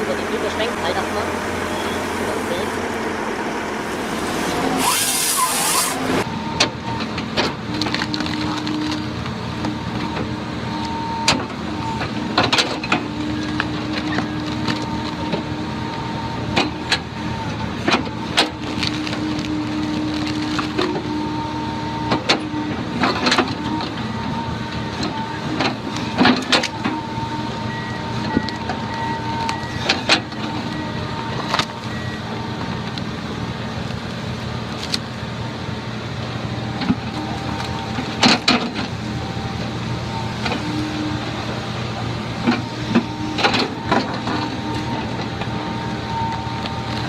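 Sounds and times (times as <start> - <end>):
engine whine: 0.0 - 47.0
heavy machine engine running: 0.0 - 47.0
hissing burst: 3.7 - 6.2.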